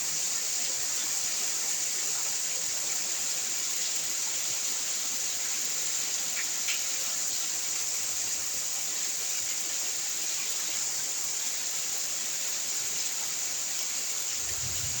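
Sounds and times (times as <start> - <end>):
rain falling: 13.8 - 15.0.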